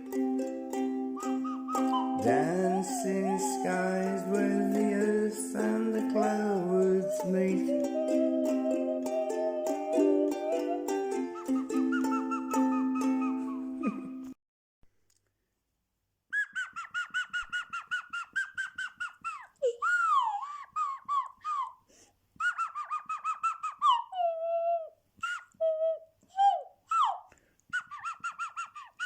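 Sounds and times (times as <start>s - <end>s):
nose flute warbling trills: 1.2s - 14.2s.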